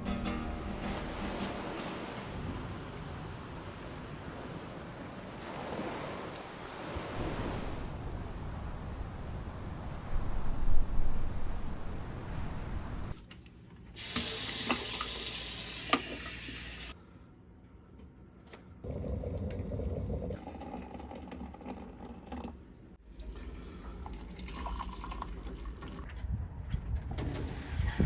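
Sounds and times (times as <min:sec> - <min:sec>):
water rushing: 0:00.3 - 0:13.2
water splashing: 0:00.6 - 0:13.1.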